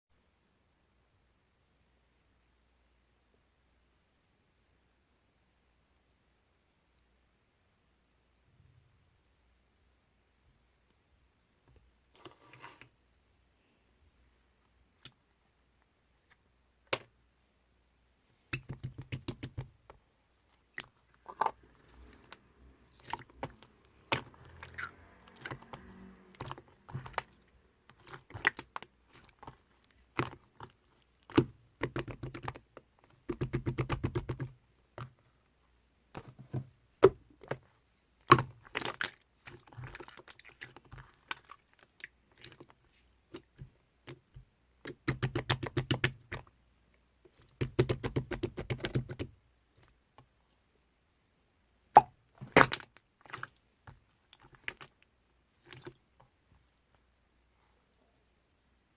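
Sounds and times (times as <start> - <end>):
slime crackling: 20.7 - 34.3.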